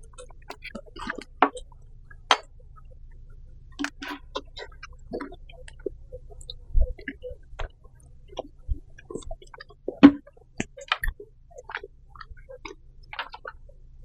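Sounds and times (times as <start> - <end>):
chewing noises: 0.0 - 13.7.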